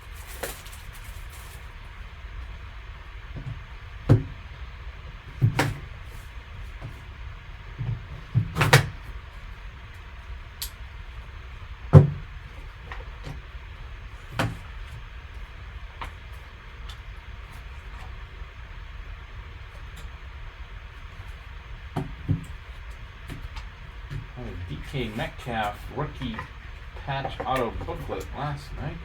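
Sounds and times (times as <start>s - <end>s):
cardboard and plastic rustling: 0.0s - 2.1s, 21.0s - 29.0s
low steady hum: 0.0s - 29.0s
knocks on box: 11.9s - 12.2s.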